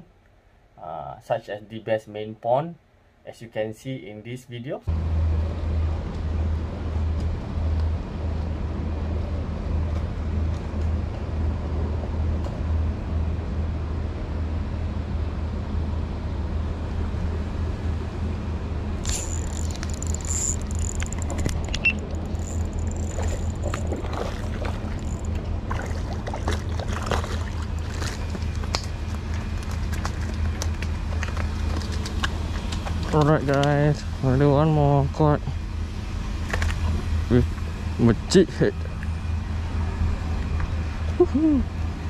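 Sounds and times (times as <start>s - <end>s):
low machine hum: 4.8s - 42.0s
ticks and clicks: 19.0s - 24.0s
thin high whine: 19.0s - 25.7s.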